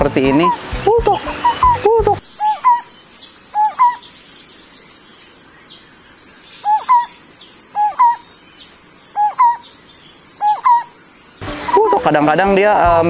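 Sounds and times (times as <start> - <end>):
barbet two-note calls: 0.0 - 2.8, 11.4 - 13.0.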